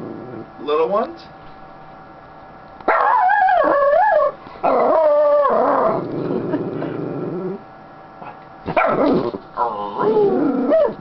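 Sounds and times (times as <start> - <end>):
dog howling: 2.9 - 6.1, 8.8 - 11.0.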